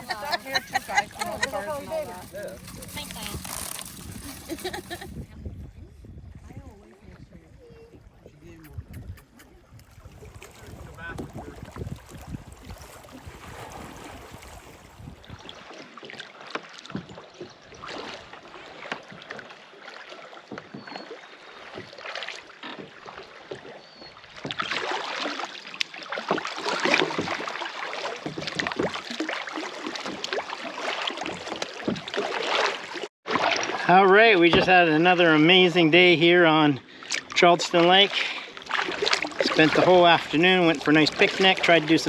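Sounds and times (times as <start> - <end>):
wind rumble on microphone: 0.4 - 15.6
paddles splashing in water: 8.2 - 42.0.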